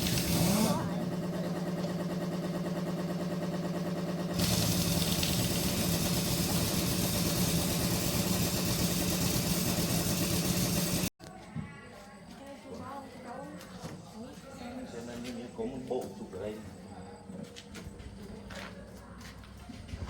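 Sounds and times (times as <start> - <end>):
engine humming: 0.0 - 11.1.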